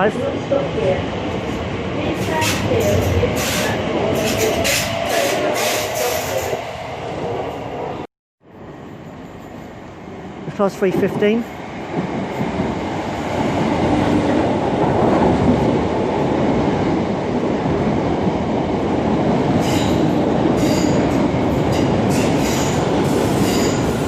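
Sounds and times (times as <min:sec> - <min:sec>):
electric train rumbling on rails: 0:00.0 - 0:24.0.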